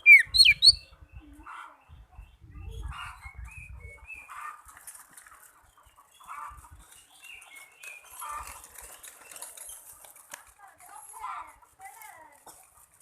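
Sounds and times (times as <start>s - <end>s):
birds whistling: 0.0s - 1.0s, 3.0s - 4.5s.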